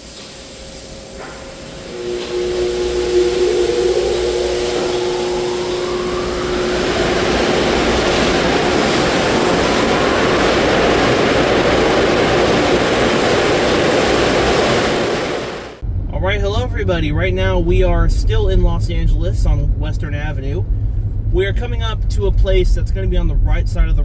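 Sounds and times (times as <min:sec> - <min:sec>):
dryer blower motor hum: 0:00.0 - 0:15.8
rushing air blast whine: 0:00.0 - 0:15.8.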